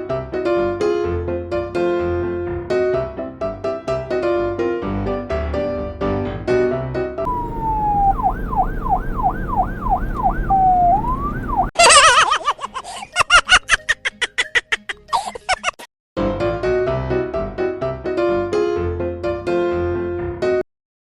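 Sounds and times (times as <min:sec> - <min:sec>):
music: 0:00.0 - 0:07.2, 0:13.3 - 0:15.3, 0:16.2 - 0:20.6
electronic police siren: 0:07.3 - 0:11.7
harsh pulsing siren tone: 0:07.3 - 0:11.7.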